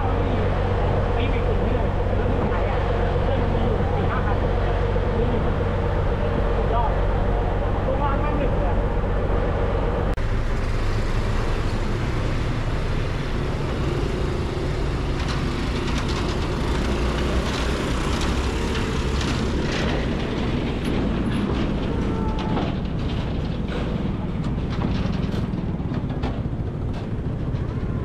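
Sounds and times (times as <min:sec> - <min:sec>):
diesel engine rumble: 0:00.0 - 0:28.0
wheels clicking and clattering: 0:10.2 - 0:28.0.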